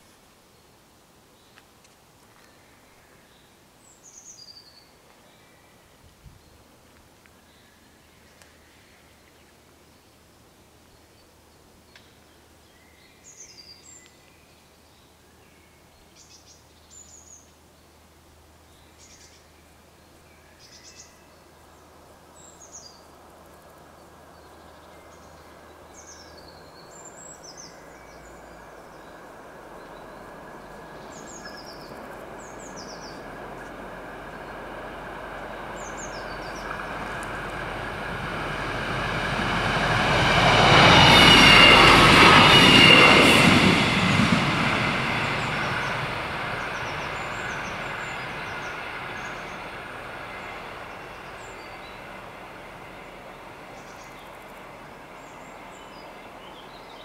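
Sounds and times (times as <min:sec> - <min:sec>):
diesel train approaching: 0:21.4 - 0:57.0.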